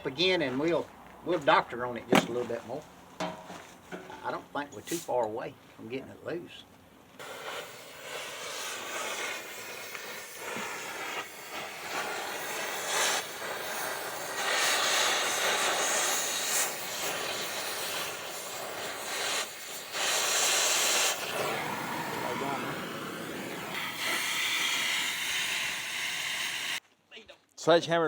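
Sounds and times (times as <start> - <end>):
torch hissing: 7.2 - 26.8.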